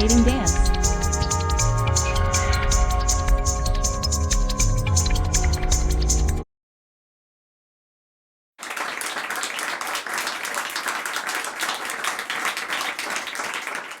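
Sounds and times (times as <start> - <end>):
crowd applauding: 8.6 - 14.0.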